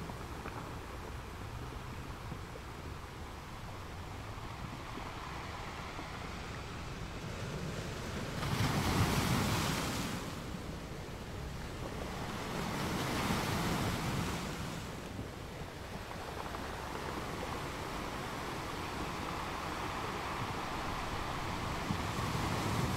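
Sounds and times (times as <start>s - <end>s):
surf breaking on a sandy beach: 0.0s - 22.9s.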